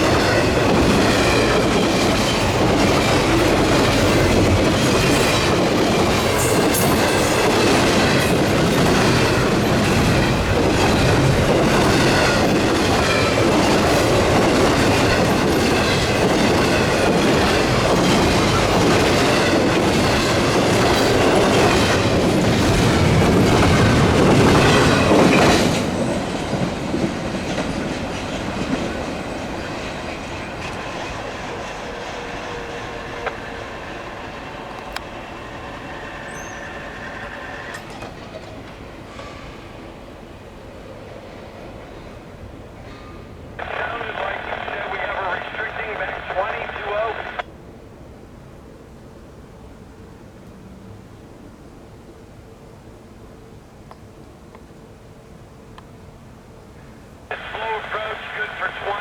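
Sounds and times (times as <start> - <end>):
train wheels clacking over rails: 0.0 - 39.8
wheel squeal: 36.1 - 37.8.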